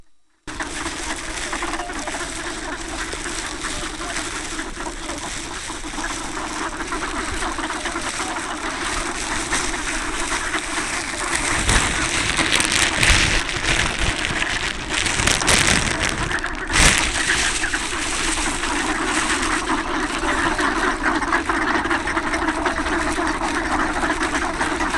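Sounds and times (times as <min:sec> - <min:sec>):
ducks calling: 0:00.5 - 0:24.9
wind on microphone: 0:08.9 - 0:19.6.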